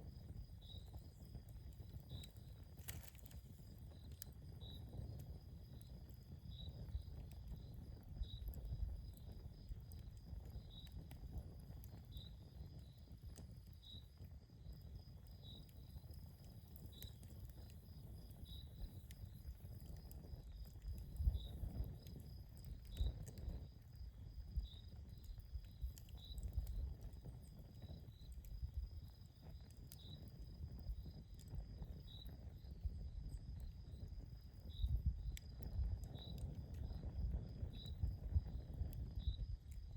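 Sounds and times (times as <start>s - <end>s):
campfire crackling: 0.0s - 39.9s
insect chirping: 16.8s - 26.8s.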